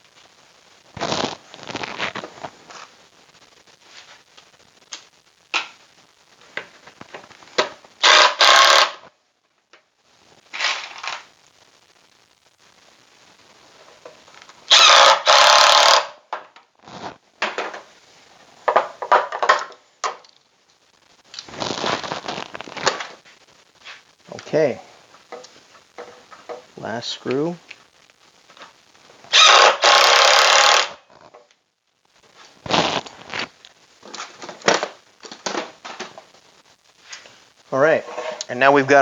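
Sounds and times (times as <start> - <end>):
power drill driving screws: 8.0 - 9.0, 14.7 - 16.1, 29.3 - 31.0.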